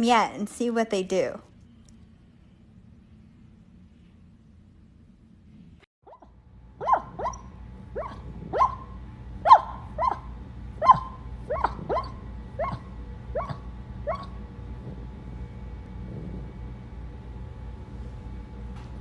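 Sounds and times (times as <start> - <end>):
dog barking: 6.1 - 14.4.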